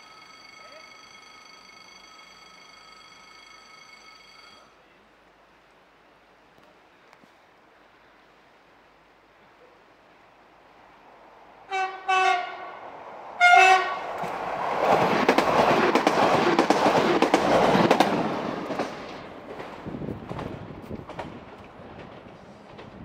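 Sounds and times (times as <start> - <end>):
train horn blasts: 11.7 - 12.8, 13.4 - 14.1
train wheels clacking on rails: 14.0 - 23.0.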